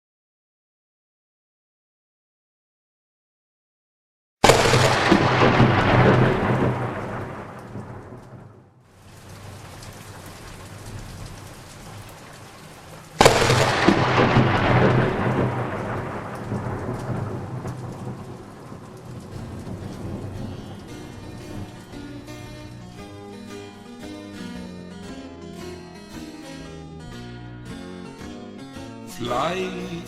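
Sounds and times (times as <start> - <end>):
thunderclaps rumbling: 4.4 - 23.8
steady falling rain: 4.4 - 25.0.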